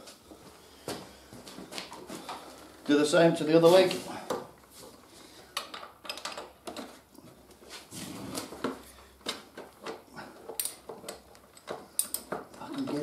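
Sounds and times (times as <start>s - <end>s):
metallic clicks of hand tools: 9.6s - 13.0s.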